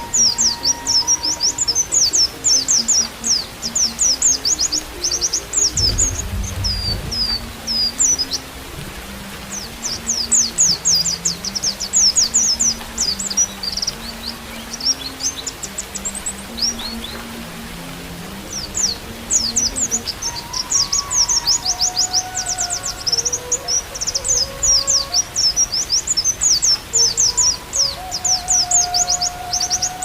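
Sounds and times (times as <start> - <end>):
flute long low notes: 0.0 - 11.5, 12.7 - 26.0, 26.7 - 30.0
bird chirping song: 0.0 - 30.0
rain hiss: 0.0 - 30.0
low rumble: 5.7 - 9.4.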